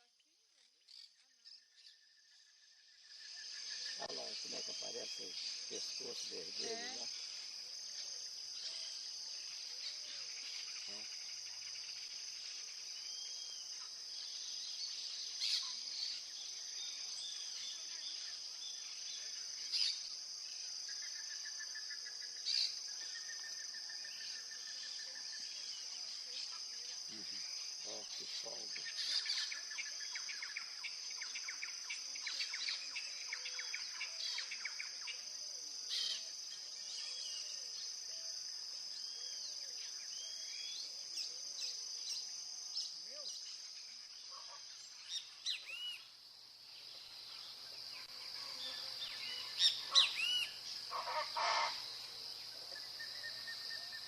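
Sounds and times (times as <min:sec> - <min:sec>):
high-pitched insect chorus: 0:00.0 - 0:54.0
birds calling: 0:48.8 - 0:51.9.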